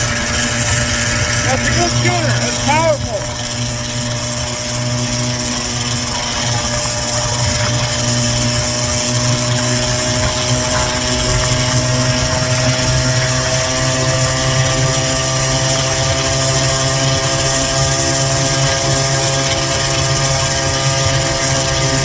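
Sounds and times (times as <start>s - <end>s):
scooter engine running: 0.0s - 22.0s.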